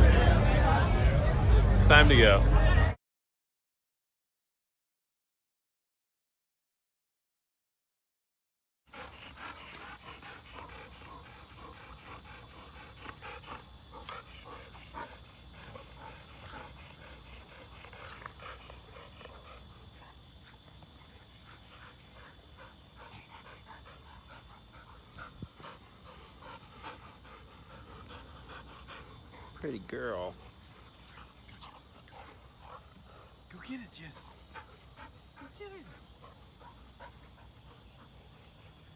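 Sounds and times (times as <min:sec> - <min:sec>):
dog panting: 0:08.9 - 0:38.9
steady high hiss: 0:08.9 - 0:38.9.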